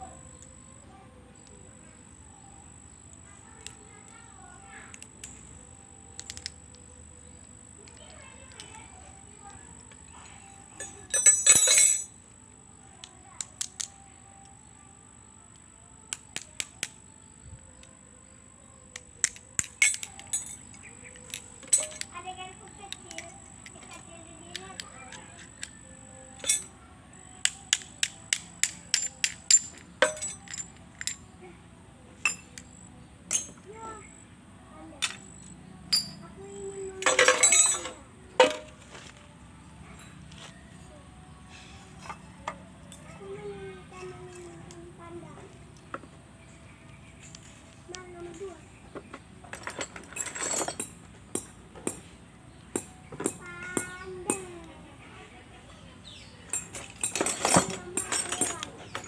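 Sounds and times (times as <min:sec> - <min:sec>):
metal tools clicking and clinking: 0:04.9 - 0:06.9, 0:09.8 - 0:12.2, 0:18.9 - 0:26.8, 0:27.4 - 0:31.3, 0:32.2 - 0:33.7, 0:35.0 - 0:39.2, 0:41.6 - 0:43.2, 0:47.1 - 0:52.1, 0:52.7 - 0:54.7, 0:56.0 - 0:59.0
metal parts rattling clatter: 0:10.4 - 0:12.2, 0:19.3 - 0:22.2, 0:26.4 - 0:26.7, 0:27.7 - 0:31.2, 0:33.3 - 0:33.7, 0:37.0 - 0:39.2, 0:49.4 - 0:52.0, 0:56.5 - 0:59.0.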